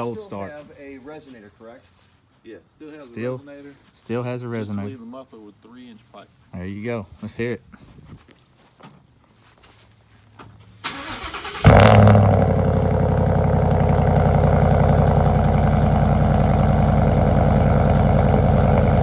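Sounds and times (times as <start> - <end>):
engine starting and idling: 10.8 - 19.0
starter motor cranking: 10.9 - 12.4.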